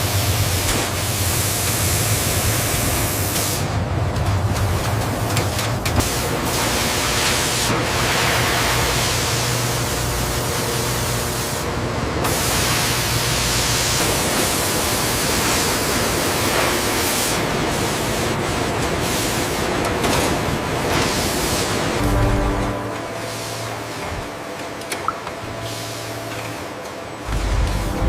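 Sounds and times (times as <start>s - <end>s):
factory machinery hissing: 0.0s - 4.1s, 5.1s - 28.0s
low hum: 22.0s - 24.4s, 27.2s - 28.0s.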